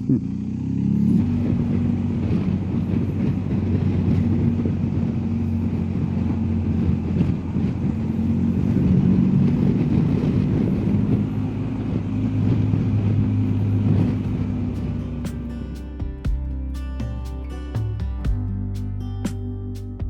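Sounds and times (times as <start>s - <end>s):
motorcycle engine running: 0.0s - 20.0s
wind and road noise: 0.0s - 20.0s
music with plucked notes: 13.9s - 20.0s.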